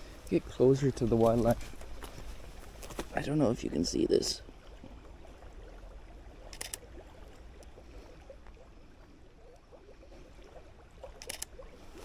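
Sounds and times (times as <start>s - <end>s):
faint rustling: 0.0s - 3.2s
camera shutter click: 11.2s - 11.5s.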